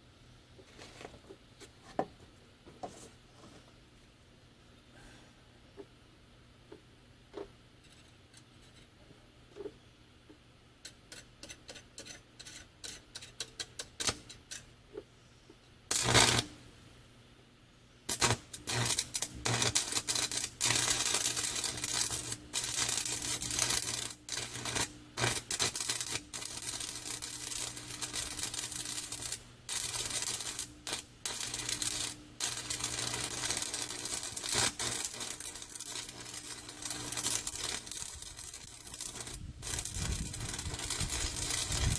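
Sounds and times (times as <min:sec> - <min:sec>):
welding arc scratchy clicks: 0:10.8 - 0:14.8, 0:15.9 - 0:16.7, 0:18.1 - 0:41.9
welding arc crackling sizzle: 0:11.1 - 0:14.7, 0:15.9 - 0:16.8, 0:18.1 - 0:41.9.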